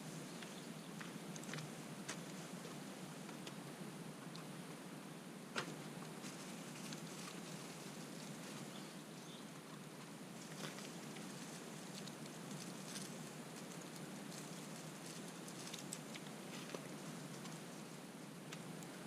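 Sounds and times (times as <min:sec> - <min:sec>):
campfire crackling: 0:05.5 - 0:19.0.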